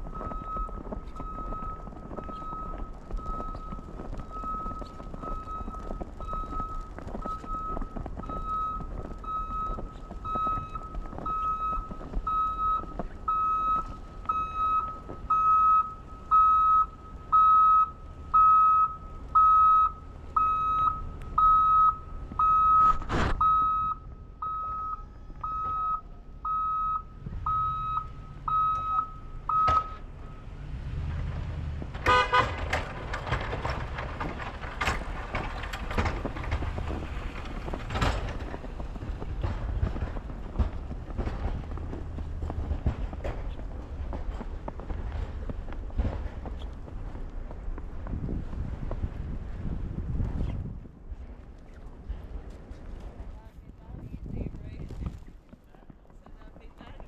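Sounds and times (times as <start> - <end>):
vehicle reversing alarm beeping: 0.0 - 31.1.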